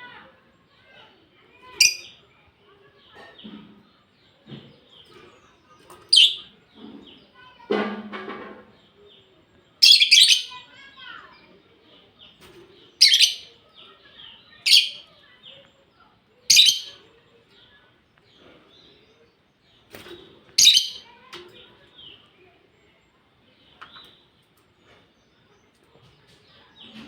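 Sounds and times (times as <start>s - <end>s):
lovebirds chirping: 0.0s - 7.7s, 8.6s - 27.0s
soft bird chatter: 0.0s - 27.0s.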